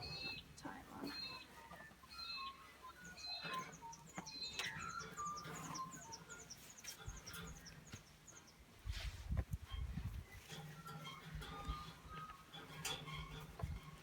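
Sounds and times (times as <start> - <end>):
birds whistling: 0.0 - 8.7.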